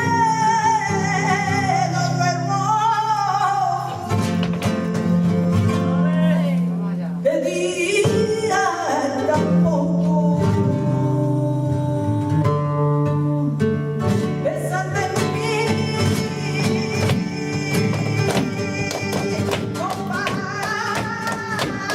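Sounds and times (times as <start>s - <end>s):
person singing: 0.0s - 4.2s, 7.2s - 21.9s
flamenco guitar: 0.0s - 21.9s.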